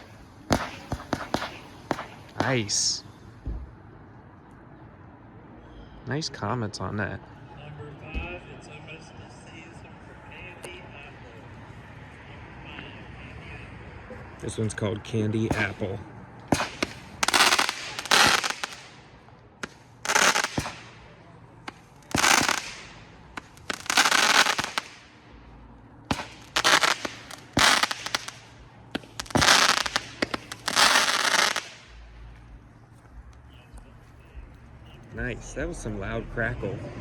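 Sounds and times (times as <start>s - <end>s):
sharp firework pops: 0.0s - 2.8s, 15.4s - 25.2s, 26.0s - 32.0s
firework crackling bursts: 0.0s - 3.1s, 16.5s - 32.3s.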